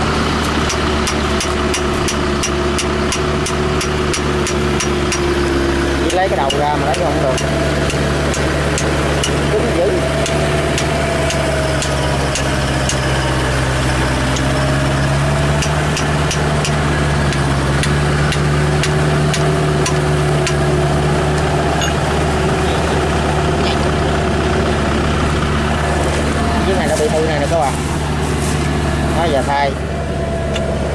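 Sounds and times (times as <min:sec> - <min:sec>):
tractor engine running: 0:00.0 - 0:30.9.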